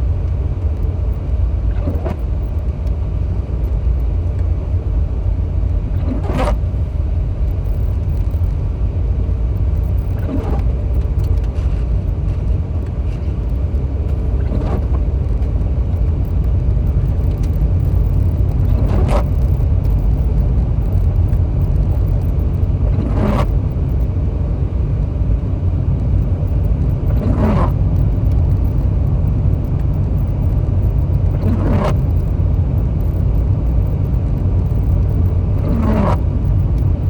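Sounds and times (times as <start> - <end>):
car cabin road rumble: 0.0 - 37.0
windshield wiper swish: 6.0 - 6.9, 10.1 - 20.2, 31.3 - 32.2.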